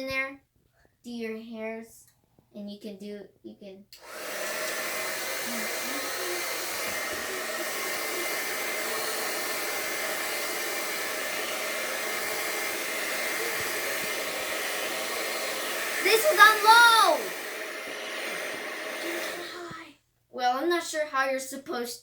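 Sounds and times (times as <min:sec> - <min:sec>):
hair dryer running: 0:04.0 - 0:19.8.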